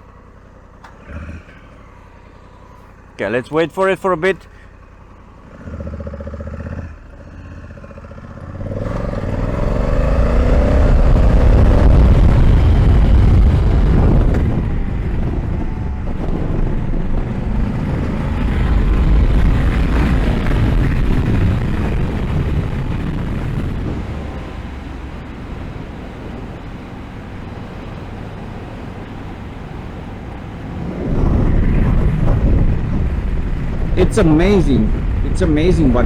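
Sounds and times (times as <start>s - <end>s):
motorcycle engine accelerating: 0.0s - 36.0s
wind rush on microphone: 8.6s - 36.0s.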